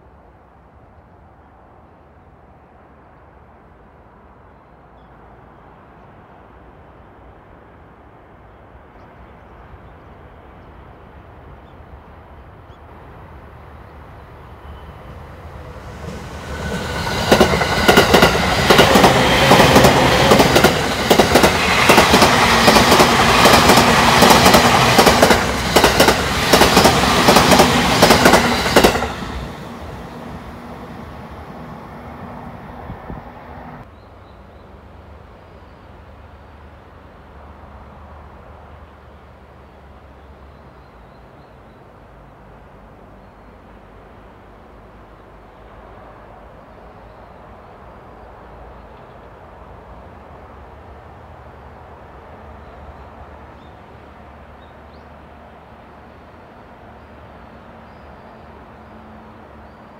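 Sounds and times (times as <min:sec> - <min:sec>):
train hum: 0:00.0 - 0:59.9
train rumble: 0:12.2 - 0:33.9.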